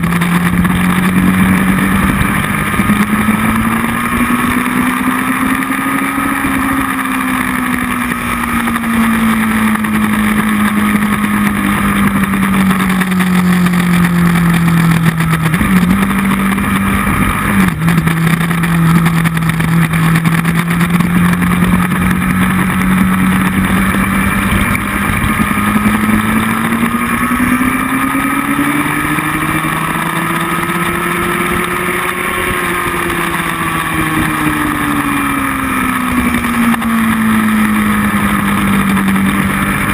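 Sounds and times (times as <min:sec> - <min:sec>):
motorcycle engine: 0:00.0 - 0:39.9
wind rush: 0:10.0 - 0:39.9.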